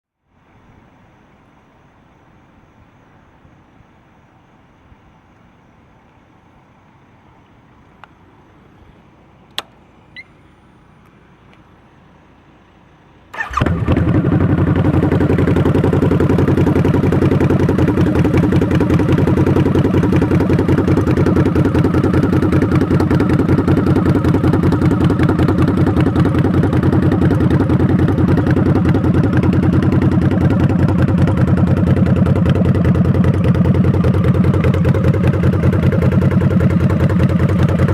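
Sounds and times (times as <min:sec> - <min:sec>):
faint clicks: 0:09.5 - 0:10.3
motorcycle engine starting and idling: 0:09.5 - 0:10.9, 0:13.2 - 0:37.9.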